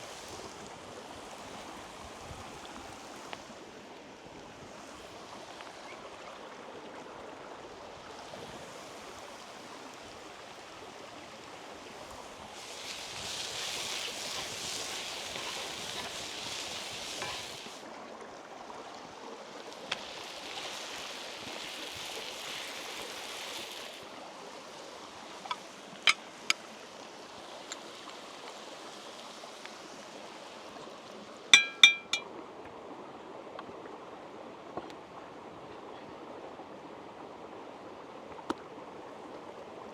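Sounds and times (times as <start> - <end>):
river water rushing: 24.0 - 32.2
ringing clinks: 31.6 - 32.2.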